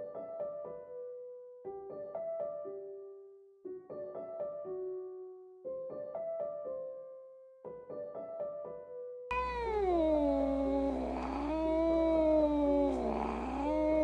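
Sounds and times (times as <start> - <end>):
soft piano music: 0.0 - 14.0
kitten meowing: 9.3 - 14.0
steady low hum: 9.3 - 14.0.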